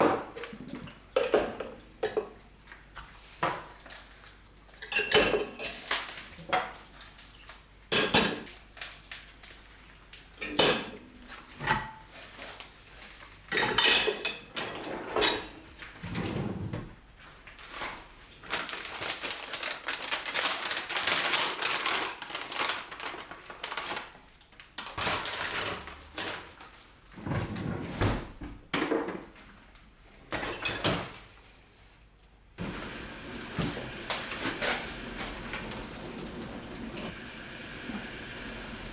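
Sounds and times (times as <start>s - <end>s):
dishes and cutlery clinking: 4.8s - 6.8s, 11.6s - 15.6s
steady hissing noise: 32.6s - 38.9s.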